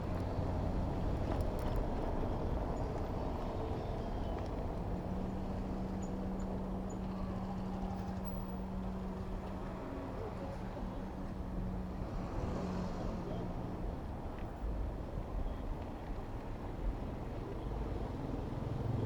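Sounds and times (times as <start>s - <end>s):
low engine hum: 0.0s - 19.0s
road traffic rumble: 8.4s - 19.0s.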